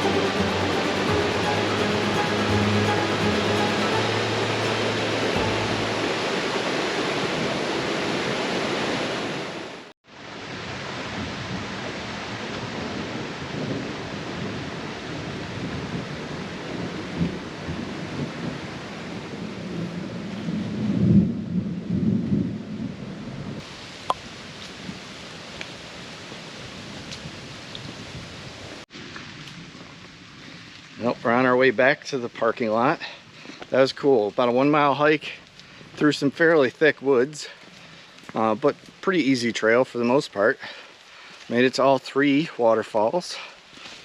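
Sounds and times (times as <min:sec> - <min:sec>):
waterfall rushing: 0:00.0 - 0:09.8.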